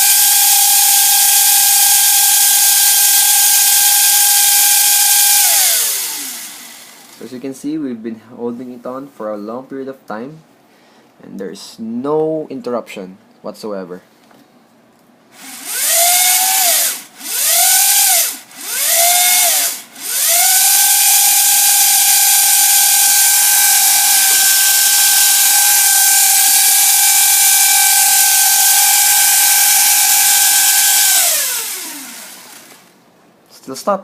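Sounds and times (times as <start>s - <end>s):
electric motors whining: 0.0s - 7.2s, 15.4s - 32.9s.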